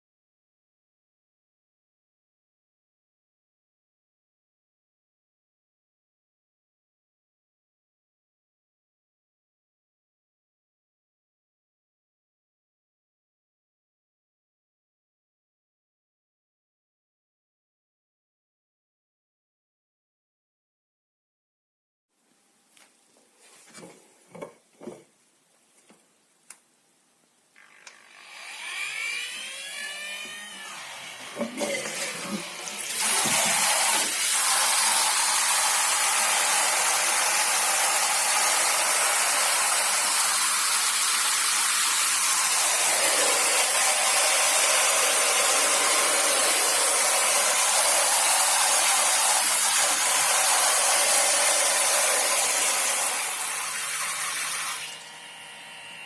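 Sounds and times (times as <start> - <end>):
battery pump whining: 27.8 - 34.3
shower water spraying: 31.2 - 34.4.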